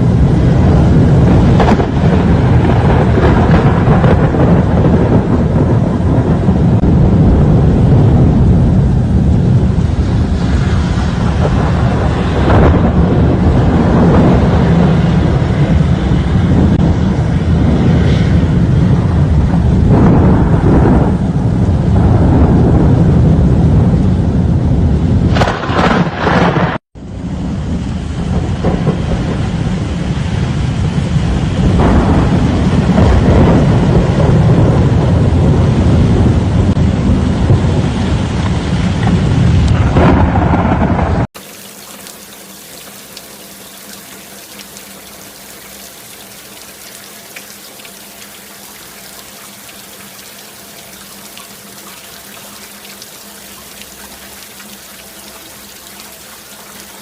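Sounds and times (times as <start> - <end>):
storm wind on microphone: 0.0 - 41.3
heavy rain: 0.0 - 57.0.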